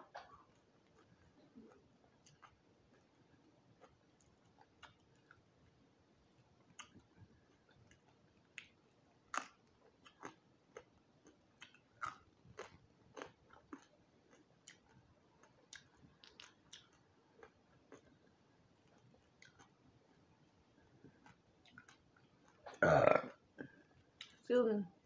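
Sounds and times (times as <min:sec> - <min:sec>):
crunchy chewing: 0:00.2 - 0:05.4, 0:06.6 - 0:19.8.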